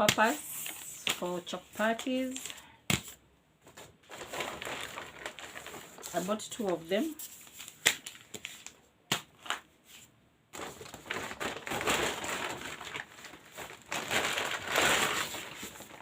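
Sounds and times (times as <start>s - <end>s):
plastic bags crinkling: 3.7s - 8.8s, 10.6s - 16.0s.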